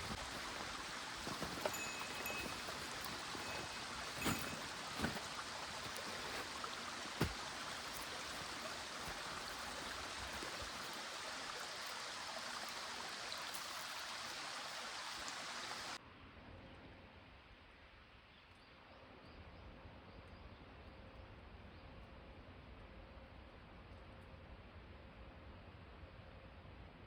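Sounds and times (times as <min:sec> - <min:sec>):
small stream running: 0:00.0 - 0:16.0.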